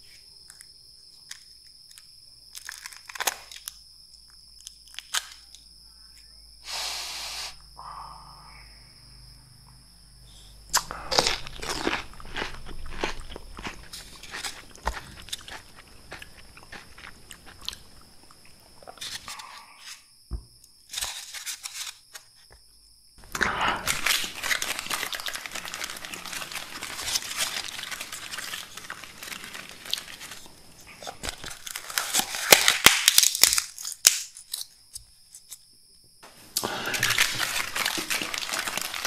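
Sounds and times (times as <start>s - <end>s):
crunching and chewing pepper: 0.4s - 5.7s, 10.7s - 20.0s, 23.2s - 34.8s, 36.6s - 39.0s.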